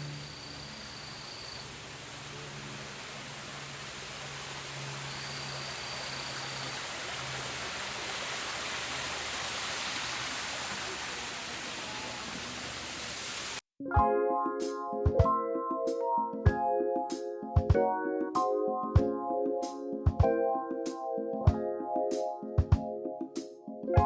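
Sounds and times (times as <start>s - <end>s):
running water rushing: 0.0s - 13.6s
piano music: 13.8s - 24.0s.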